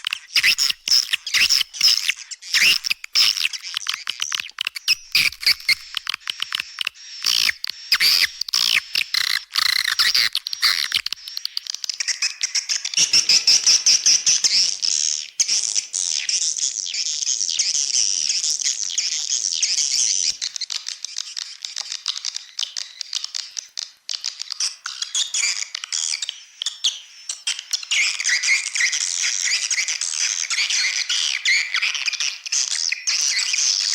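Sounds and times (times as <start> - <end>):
swiftlet chirps and clicks: 0.1 - 11.6.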